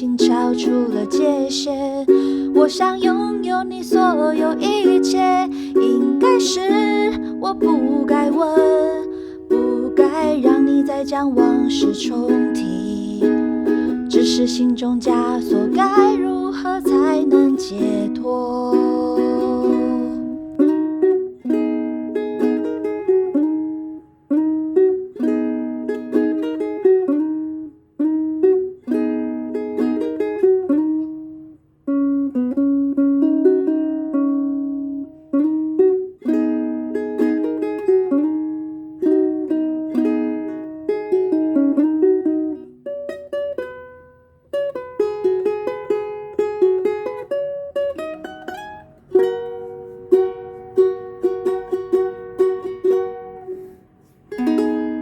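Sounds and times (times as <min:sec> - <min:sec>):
solo ukulele playing: 0:00.0 - 0:55.0.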